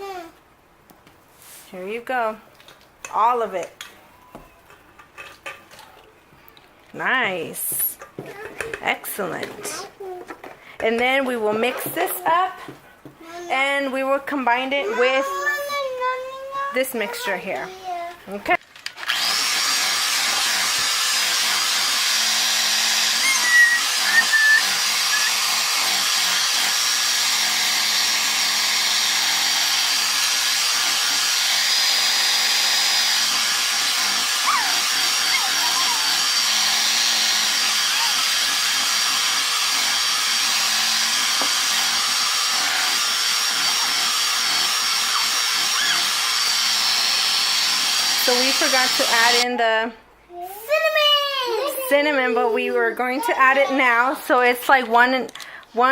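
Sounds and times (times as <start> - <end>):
electric mixer running: 19.0 - 49.4.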